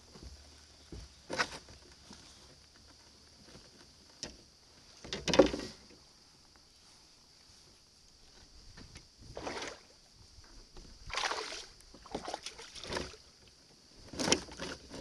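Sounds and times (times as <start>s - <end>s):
steady high hiss: 0.0s - 12.1s
kayak knocks and paddle splashes: 9.3s - 9.9s, 10.8s - 13.4s.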